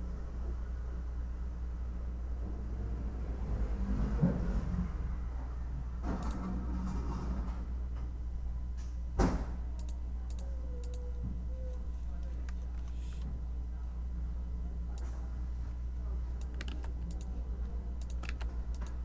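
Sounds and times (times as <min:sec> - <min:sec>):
low background hum: 0:00.0 - 0:19.0
keyboard key clicks: 0:16.4 - 0:17.3, 0:18.0 - 0:19.0.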